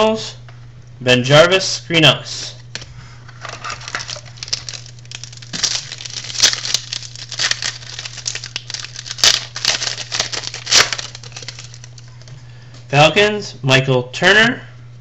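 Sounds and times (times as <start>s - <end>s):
low electrical hum: 0.0s - 15.0s
foil wrapper crinkling: 3.2s - 12.4s.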